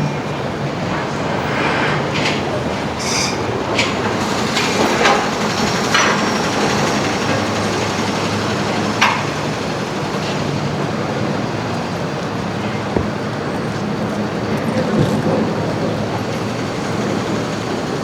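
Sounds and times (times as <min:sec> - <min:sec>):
city ambience rumble: 0:00.0 - 0:18.0.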